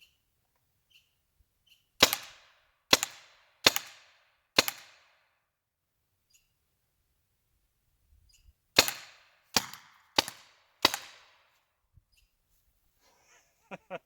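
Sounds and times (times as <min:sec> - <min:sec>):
paintball marker shots popping: 0:02.0 - 0:04.0, 0:04.6 - 0:05.0, 0:08.8 - 0:11.4.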